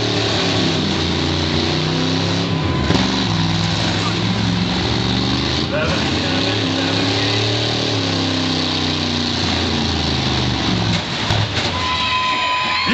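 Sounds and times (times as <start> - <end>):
car engines revving: 0.0 - 11.8.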